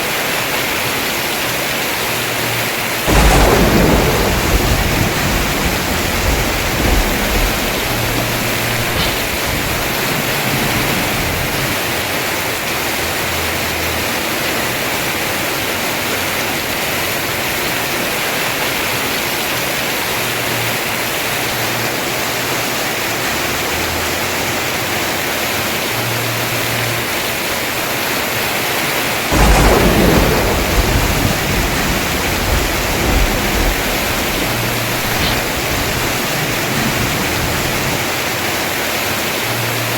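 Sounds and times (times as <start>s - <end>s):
heavy rain on a roof: 0.0s - 39.9s
loud thunder clap: 3.0s - 12.6s, 29.2s - 38.5s
thunder rumbling: 3.0s - 21.6s, 27.8s - 39.9s.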